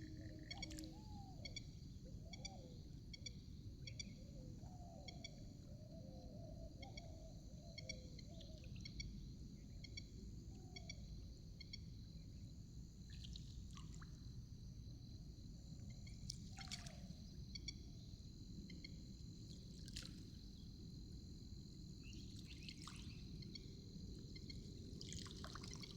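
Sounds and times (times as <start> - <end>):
water trickling and splashing: 16.3 - 17.0, 22.4 - 23.2, 24.9 - 25.9.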